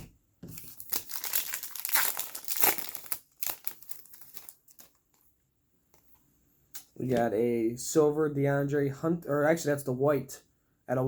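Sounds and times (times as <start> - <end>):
plastic wrapping crinkling: 0.5 - 5.3.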